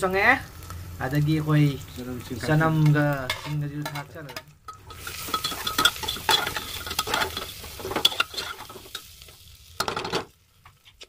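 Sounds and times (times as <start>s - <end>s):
onions sizzling in oil: 0.0s - 11.0s
metal spoon scraping and clinking pot: 2.8s - 9.1s.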